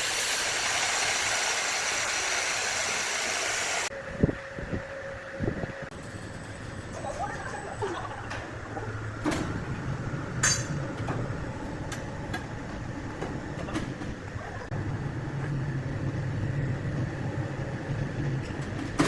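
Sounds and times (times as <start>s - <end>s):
sawmill machinery hum: 0.0s - 3.9s.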